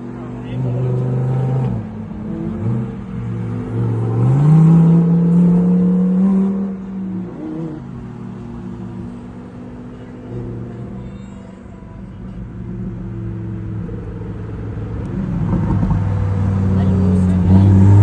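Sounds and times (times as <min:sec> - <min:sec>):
sports car engine revving: 0:13.0 - 0:18.0.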